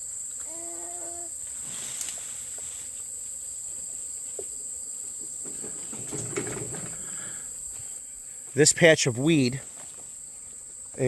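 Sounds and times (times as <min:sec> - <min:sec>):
insects droning high-pitched: 0:00.0 - 0:11.0
bees buzzing: 0:00.1 - 0:08.6.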